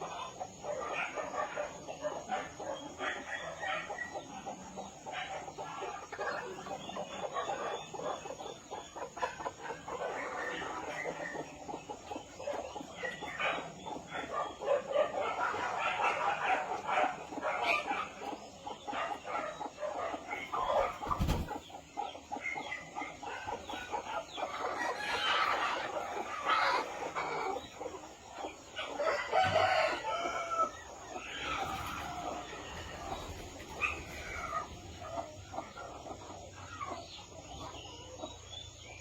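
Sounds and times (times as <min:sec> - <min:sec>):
chickens clucking: 0:00.0 - 0:39.0
rooster crowing: 0:29.0 - 0:30.7.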